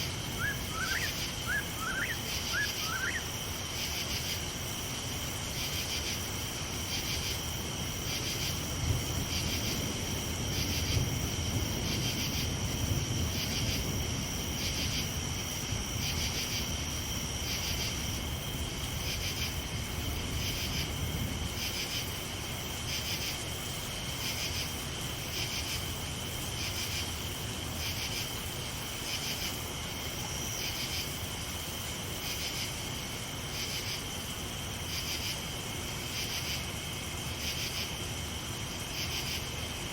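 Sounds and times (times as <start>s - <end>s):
night insects trilling: 0.0s - 39.9s
rain hissing: 0.0s - 39.9s
distant thunder rumbling: 8.5s - 16.4s.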